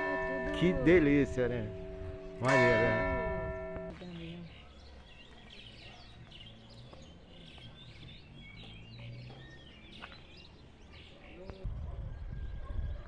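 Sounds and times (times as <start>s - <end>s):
small birds chirping: 3.9s - 13.0s.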